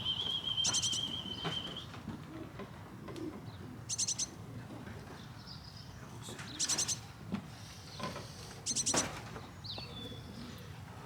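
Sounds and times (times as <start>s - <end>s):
rapid high bird chirps: 0.6s - 1.2s.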